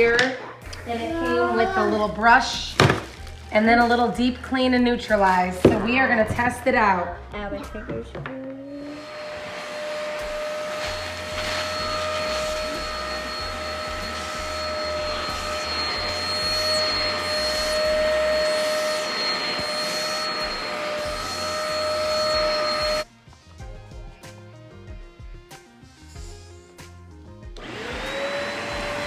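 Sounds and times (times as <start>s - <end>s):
spot cleaner suction motor whine: 0.6s - 7.0s, 8.6s - 23.1s, 27.6s - 29.0s.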